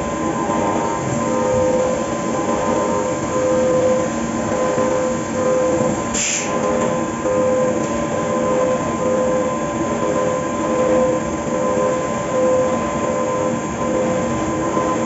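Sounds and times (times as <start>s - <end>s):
short hiss: 6.2s - 6.5s.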